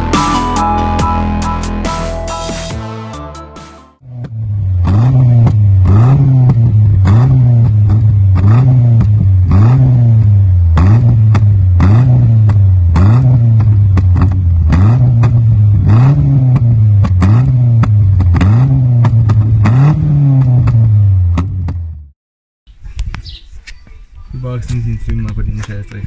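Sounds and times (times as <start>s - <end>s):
car engine revving: 4.7s - 21.4s.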